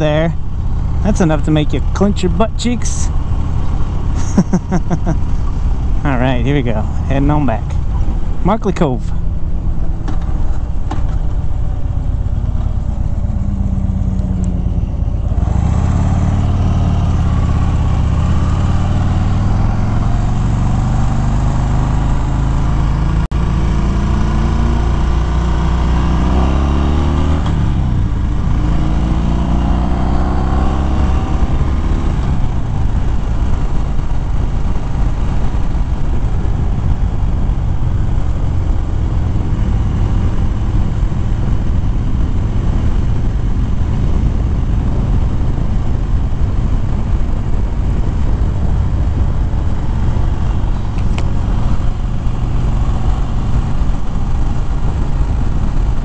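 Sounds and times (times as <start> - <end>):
motorcycle engine accelerating: 9.2 - 56.0
wind on microphone: 23.8 - 56.0.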